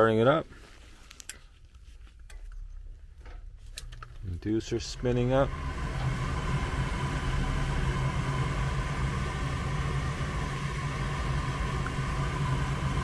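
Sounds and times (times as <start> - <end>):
furnace motor humming: 3.7 - 13.0.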